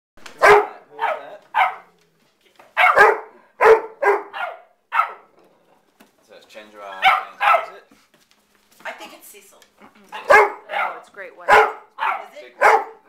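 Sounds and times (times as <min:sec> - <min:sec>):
dog barking: 0:00.4 - 0:02.0, 0:02.8 - 0:05.3, 0:06.9 - 0:07.8, 0:10.1 - 0:13.0.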